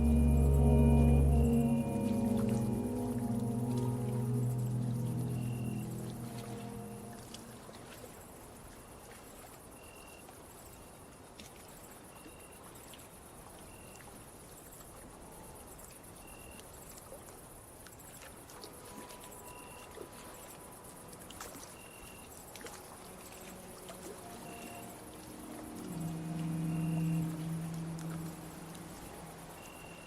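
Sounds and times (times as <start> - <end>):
crickets trilling: 18.8 - 30.0.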